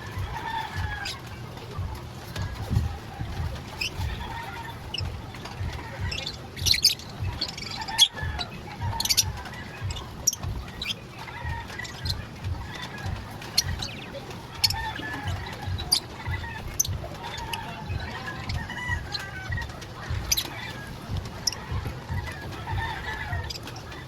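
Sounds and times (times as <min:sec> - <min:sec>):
birds chirping: 0:00.0 - 0:24.0
low irregular thudding: 0:00.0 - 0:24.0.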